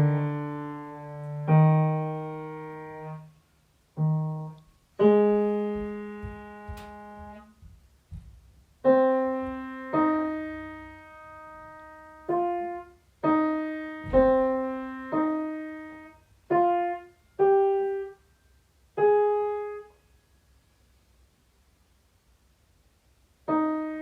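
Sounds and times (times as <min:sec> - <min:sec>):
slow piano melody: 0:00.0 - 0:03.3, 0:03.9 - 0:07.5, 0:08.8 - 0:18.3, 0:18.9 - 0:20.0, 0:23.4 - 0:24.0.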